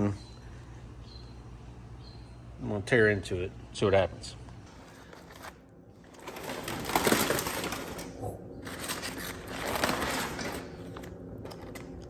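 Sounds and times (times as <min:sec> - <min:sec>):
wrapping crinkling and rustling: 0:04.7 - 0:12.0.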